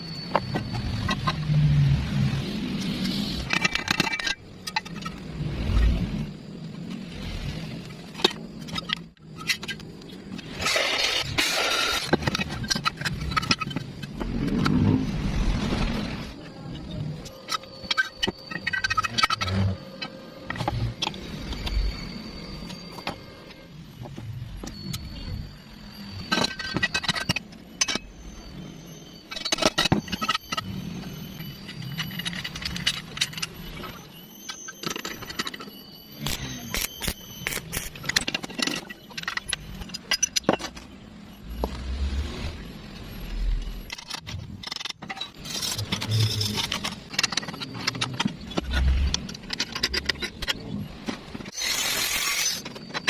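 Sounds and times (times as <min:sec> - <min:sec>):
hard objects clattering and scraping: 0:08.1 - 0:21.8, 0:43.8 - 0:53.0.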